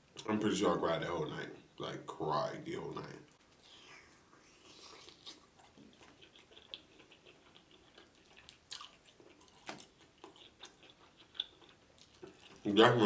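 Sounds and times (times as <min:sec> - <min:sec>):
chewing with wet mouth clicks: 0:03.2 - 0:12.8.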